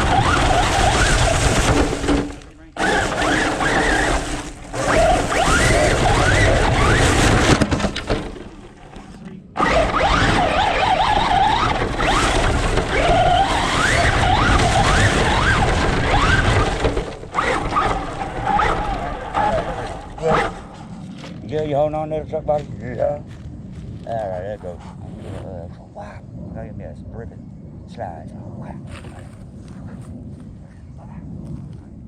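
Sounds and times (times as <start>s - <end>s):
rc truck motor whining: 0.0s - 8.3s, 9.6s - 20.8s
loud rough rushing noise: 0.0s - 9.0s, 9.6s - 21.2s.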